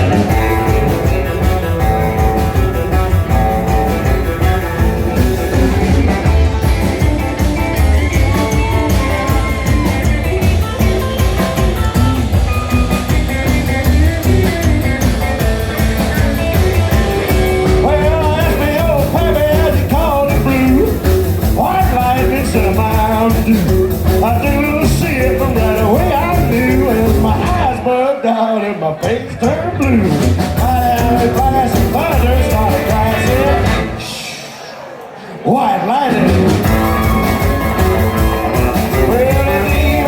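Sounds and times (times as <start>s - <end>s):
bass and drum beat: 0.0s - 27.9s, 29.0s - 34.2s, 36.1s - 40.0s
electric guitar: 0.0s - 27.9s, 29.0s - 34.4s, 36.1s - 40.0s
rock band playing: 0.0s - 28.0s, 28.8s - 40.0s.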